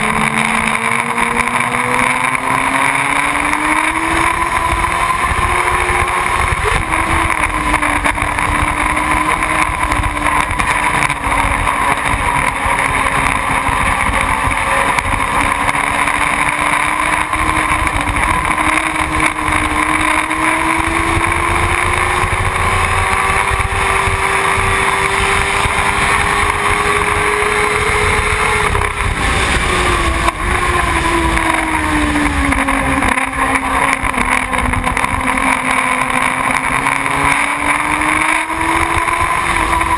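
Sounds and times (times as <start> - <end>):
motorcycle engine running: 0.0 - 39.9
wind rumble on microphone: 3.9 - 35.7.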